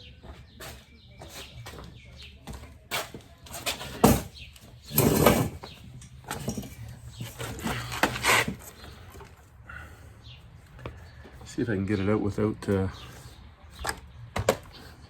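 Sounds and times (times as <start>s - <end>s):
objects knocking: 2.9s - 9.3s
objects scraping: 2.9s - 9.4s.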